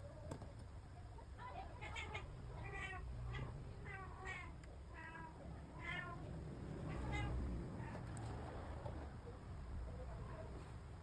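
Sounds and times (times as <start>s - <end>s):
cat meowing: 1.8s - 8.0s.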